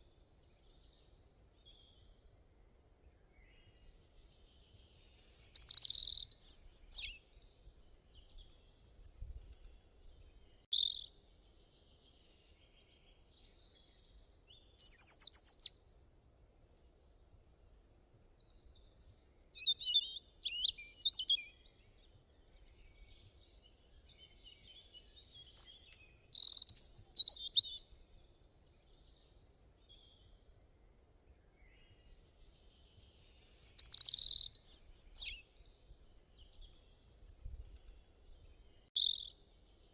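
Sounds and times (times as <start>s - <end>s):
birds chirping and trilling: 4.1s - 7.2s, 14.6s - 15.7s, 19.6s - 30.2s, 31.8s - 39.9s.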